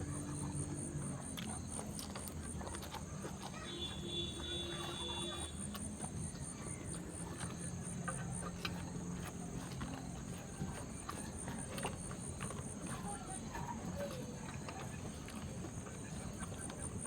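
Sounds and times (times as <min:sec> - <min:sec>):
person chewing and eating: 0:00.0 - 0:17.0.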